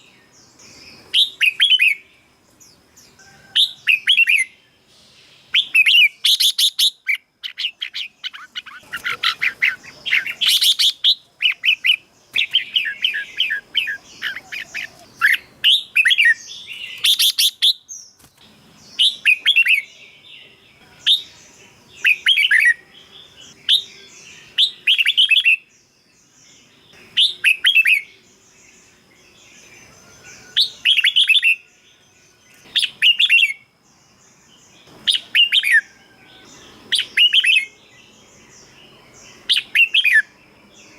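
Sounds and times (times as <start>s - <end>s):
bulbul singing warbled phrases: 0.0s - 40.9s.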